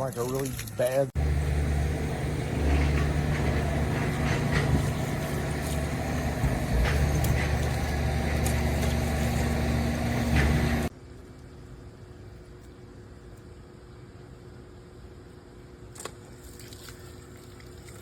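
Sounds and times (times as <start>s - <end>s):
engine running: 1.2s - 10.9s.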